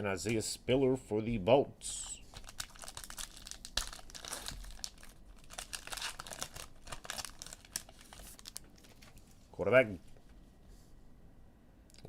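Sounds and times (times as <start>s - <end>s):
wrappers crinkling and rustling: 2.3s - 9.5s.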